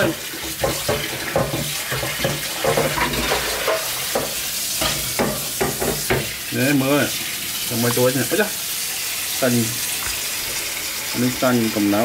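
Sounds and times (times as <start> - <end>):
food frying in a pan: 0.0 - 12.0
utensil scraping and clinking pan: 0.4 - 6.3.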